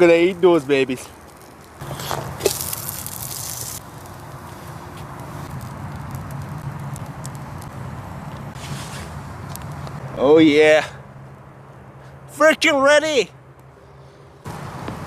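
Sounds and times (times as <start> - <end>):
fire crackling: 0.0 - 10.0
meat sizzling: 1.2 - 7.7.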